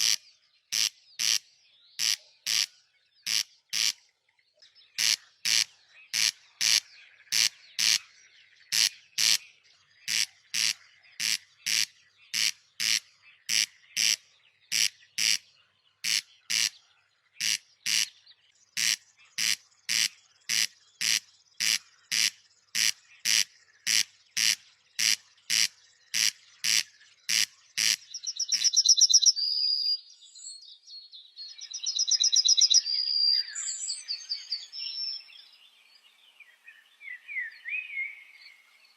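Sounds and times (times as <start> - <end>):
rasping bird call: 0.0 - 1.4, 2.0 - 4.0, 5.0 - 8.0, 8.7 - 9.4, 10.1 - 15.4, 16.0 - 16.8, 17.4 - 18.1, 18.8 - 28.9
high trilled bird song: 0.0 - 38.9.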